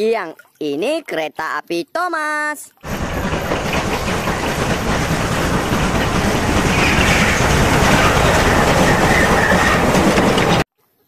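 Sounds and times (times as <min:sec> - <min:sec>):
steam train wheels clacking: 0:02.8 - 0:10.7.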